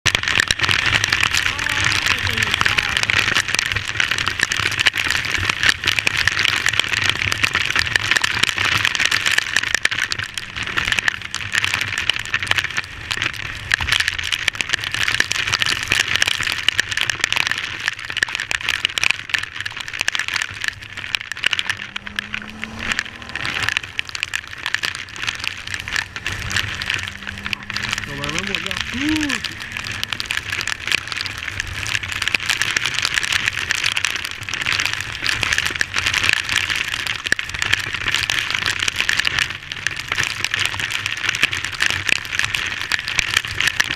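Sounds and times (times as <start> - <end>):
rain drops hitting camera: 0.0 - 43.9
wind: 0.0 - 43.9
motorcycle engine drone: 8.5 - 13.3, 20.5 - 34.6.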